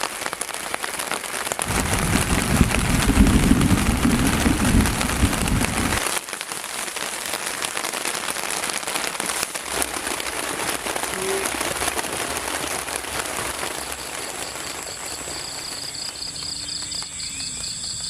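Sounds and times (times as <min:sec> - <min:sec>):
heavy rain pattering: 0:00.0 - 0:18.0
low rumble: 0:01.7 - 0:06.0.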